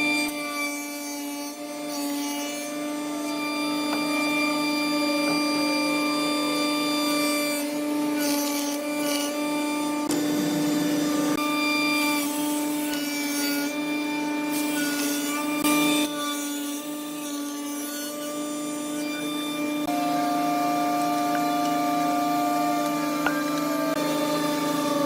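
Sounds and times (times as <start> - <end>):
power tool motor hum: 18.1 - 25.0.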